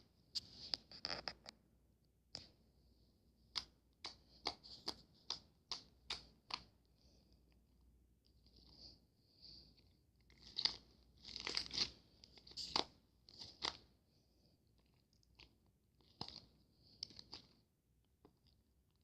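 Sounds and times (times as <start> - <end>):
crisp crunching and crackling: 10.2 - 13.8, 14.9 - 17.6.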